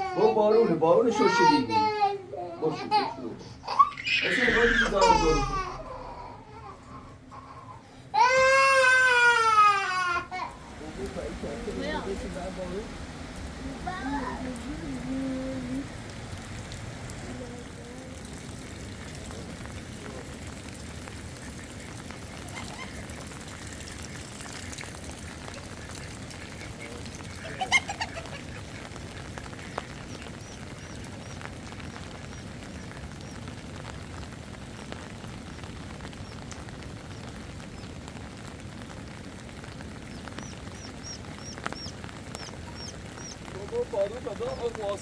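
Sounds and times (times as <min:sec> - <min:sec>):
steady rain: 0:00.0 - 0:45.0
small birds chirping: 0:10.5 - 0:18.6, 0:21.4 - 0:34.0, 0:34.6 - 0:38.6, 0:39.2 - 0:45.0.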